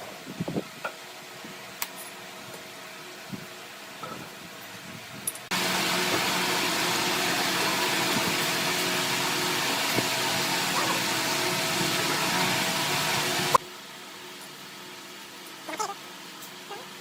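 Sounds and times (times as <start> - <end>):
power tool motor whirring: 5.5 - 13.6.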